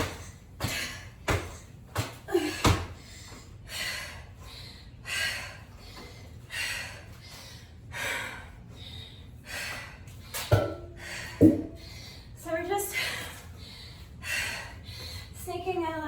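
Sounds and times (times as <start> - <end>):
woman panting: 0.0 - 15.8.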